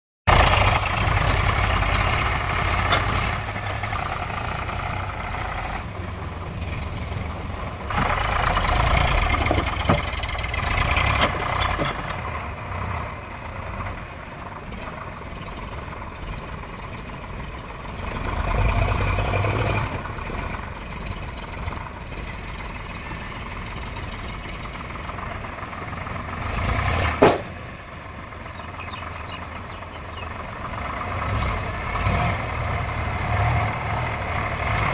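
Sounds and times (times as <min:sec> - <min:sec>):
heavy vehicle engine running: 0:00.3 - 0:34.9
short sharp knock: 0:27.2 - 0:27.6.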